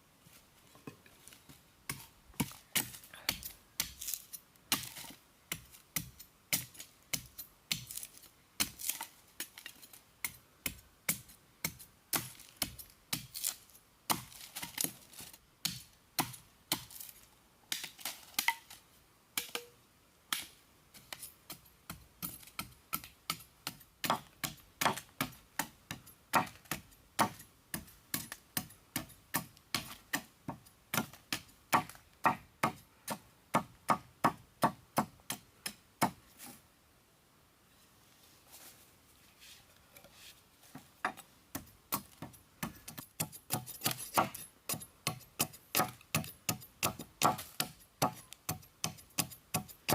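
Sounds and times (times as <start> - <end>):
sharp chopping strikes: 41.6 - 49.9.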